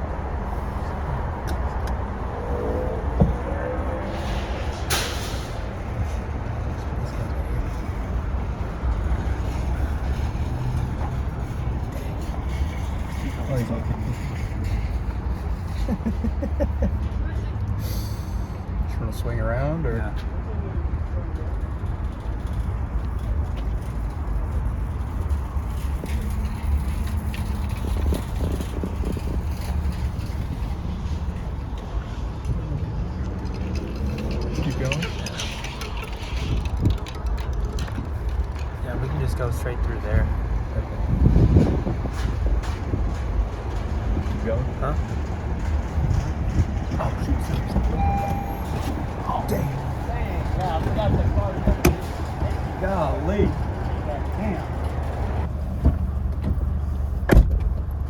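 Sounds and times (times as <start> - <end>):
car driving slowly: 0.0 - 58.0.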